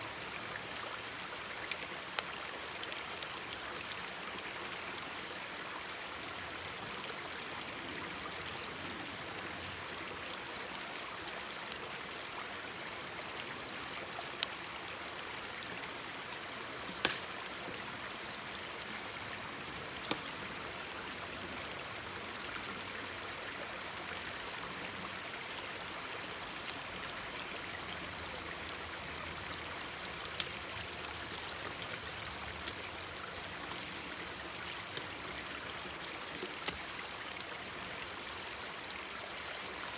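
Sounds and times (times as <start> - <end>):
stream babbling: 0.0 - 39.9
campfire popping: 16.8 - 17.6, 19.8 - 20.6, 30.3 - 33.0, 36.2 - 37.6.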